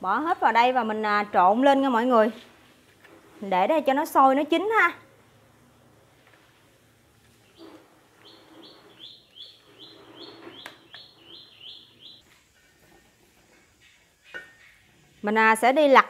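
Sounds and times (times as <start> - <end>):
small bird chirping: 7.4 - 12.3.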